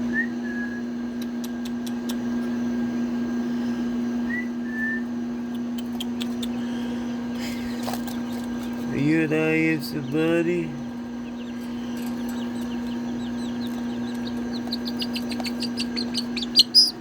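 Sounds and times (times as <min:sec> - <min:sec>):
low hum: 0:00.0 - 0:17.0
baby chicks peeping: 0:05.6 - 0:17.0.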